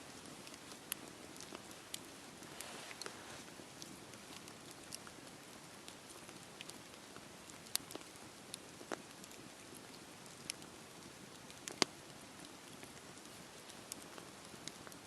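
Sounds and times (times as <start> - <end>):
campfire popping and crackling: 0.0 - 15.0
rain hissing: 2.2 - 3.5.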